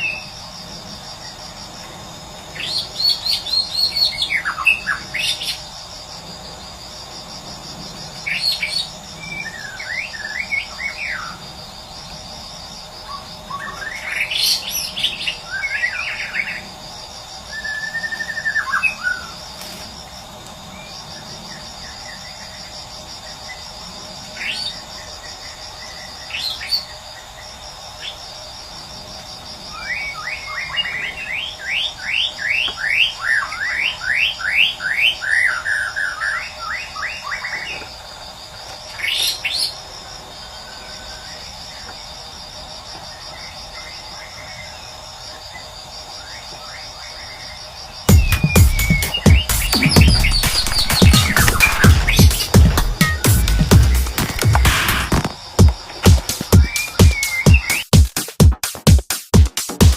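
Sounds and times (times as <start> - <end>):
insect chorus with pulsing trill: 0.0 - 58.4
songbird singing: 2.5 - 5.7, 13.0 - 16.8, 17.4 - 19.4, 29.7 - 37.9, 46.2 - 58.0.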